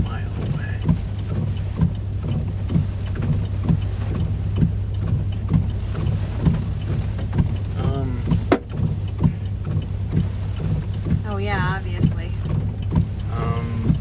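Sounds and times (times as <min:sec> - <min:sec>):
rain and wind beating on car: 0:00.0 - 0:14.0
regular knocking: 0:00.0 - 0:14.0
steady low hum: 0:00.0 - 0:14.0.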